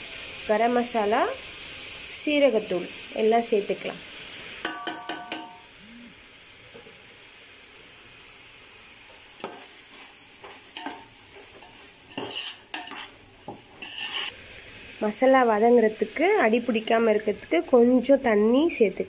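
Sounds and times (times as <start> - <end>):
food sizzling in a pot: 0.0 - 19.0
metal spoon clinking and scraping: 4.6 - 5.6, 10.8 - 13.2, 13.8 - 14.4.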